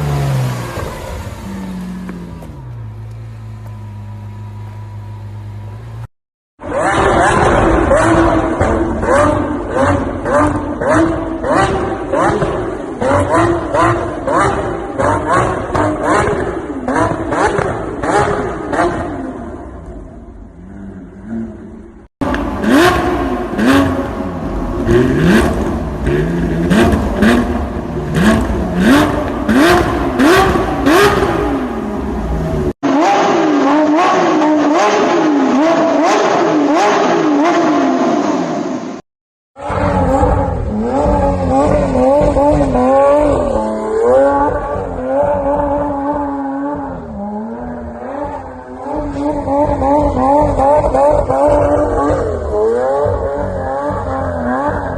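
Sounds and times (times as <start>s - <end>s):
sports car engine revving: 6.6s - 38.4s, 39.6s - 54.9s
exhaust cracks: 39.6s - 54.9s.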